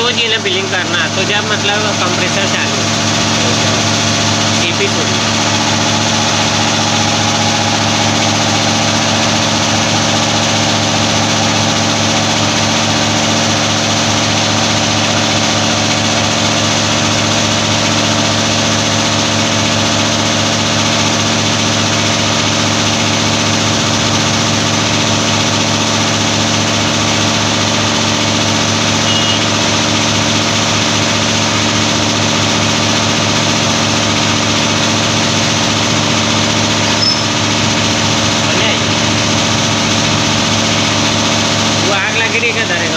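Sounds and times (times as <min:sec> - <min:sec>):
air conditioner humming: 0:00.0 - 0:42.9.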